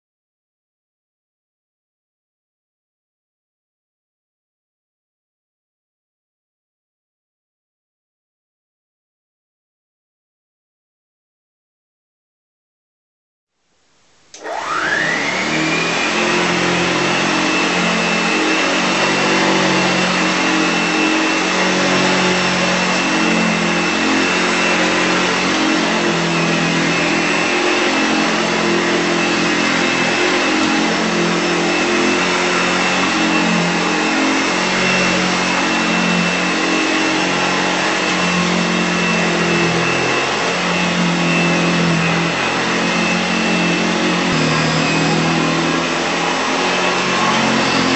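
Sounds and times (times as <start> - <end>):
vacuum cleaner motor whine: 14.3 - 47.9.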